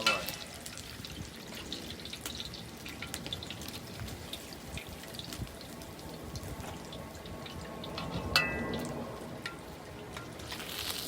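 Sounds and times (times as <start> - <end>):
fish deep-frying in oil: 0.0 - 11.0.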